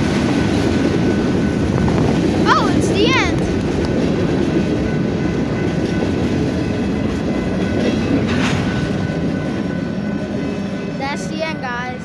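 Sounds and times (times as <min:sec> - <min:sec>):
steel wheels rumbling on rail: 0:00.0 - 0:12.0
thin high ringing tones: 0:08.6 - 0:12.0.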